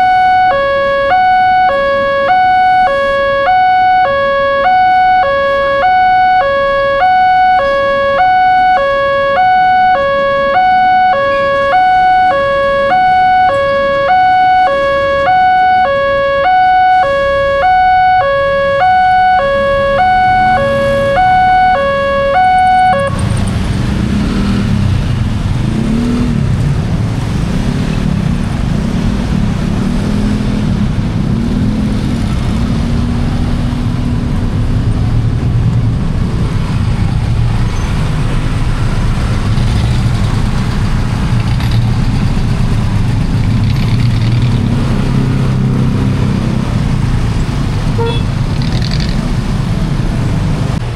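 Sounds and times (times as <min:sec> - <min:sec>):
railroad crossing alarm ding-dong: 0:00.0 - 0:23.2
rumble of road traffic: 0:00.0 - 0:50.9.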